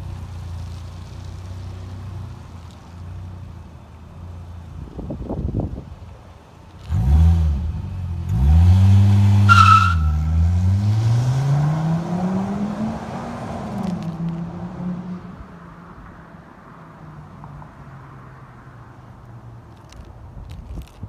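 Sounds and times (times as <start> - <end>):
car engine revving and accelerating: 6.8 - 15.6
tire chirp squeal: 9.4 - 10.4.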